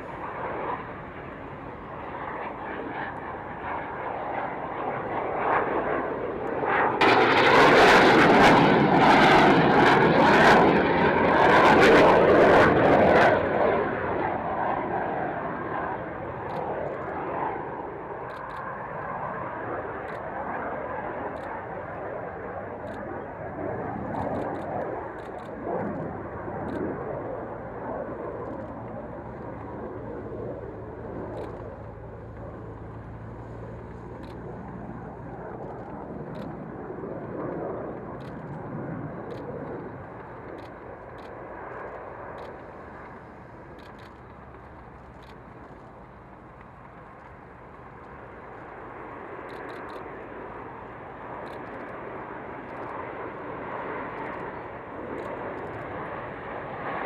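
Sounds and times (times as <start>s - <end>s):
aircraft engine rumble: 0.0s - 57.0s.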